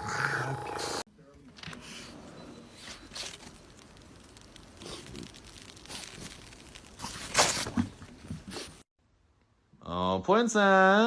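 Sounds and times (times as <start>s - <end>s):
paper or plastic crinkling: 2.7s - 8.8s.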